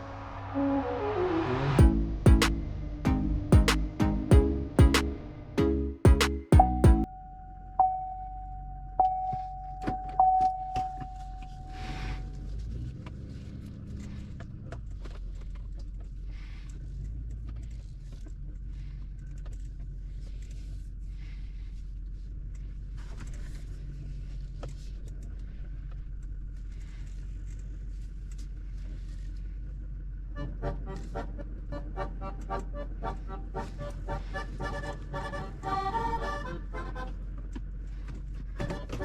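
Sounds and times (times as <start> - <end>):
tractor engine running: 1.8 - 7.1, 29.7 - 39.0.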